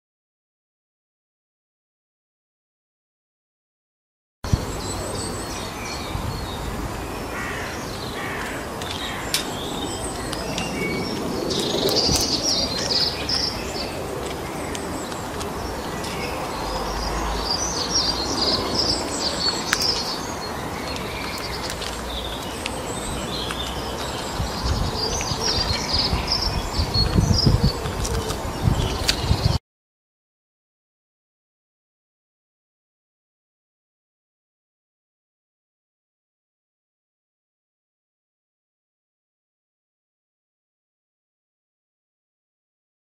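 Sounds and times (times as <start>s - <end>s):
outdoor background hiss: 4.5s - 26.7s
small birds chirping: 4.5s - 29.6s.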